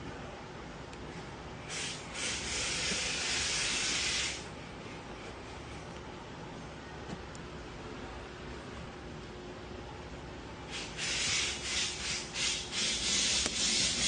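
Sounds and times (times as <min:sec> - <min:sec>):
hiss: 0:01.7 - 0:04.5, 0:10.7 - 0:14.0.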